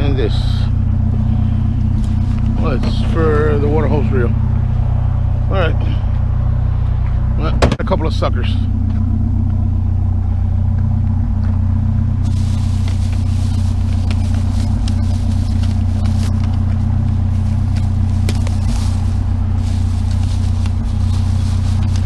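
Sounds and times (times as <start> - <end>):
truck engine idling: 0.0 - 22.0
rustling: 1.1 - 3.1, 11.6 - 22.0.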